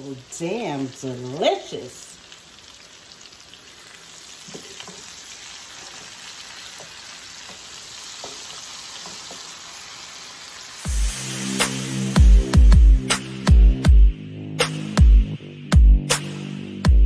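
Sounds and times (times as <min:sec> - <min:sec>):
fish sizzling in hot oil: 0:00.0 - 0:12.4.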